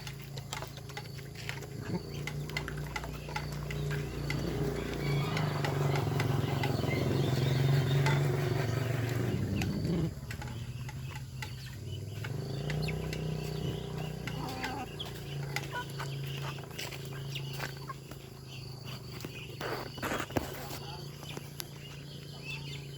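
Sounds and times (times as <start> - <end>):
ducks pecking clicks: 0.0 - 18.3.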